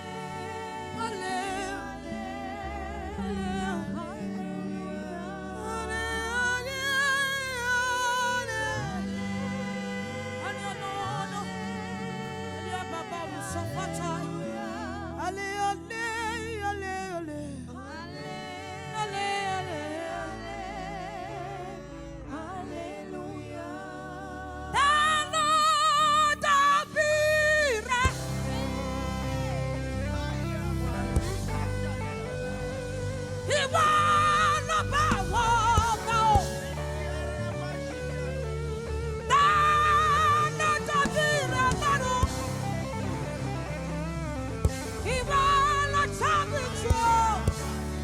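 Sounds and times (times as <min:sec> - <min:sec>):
solo gospel singing with vibrato: 0:00.0 - 0:48.0
low instrumental backing: 0:18.2 - 0:48.0.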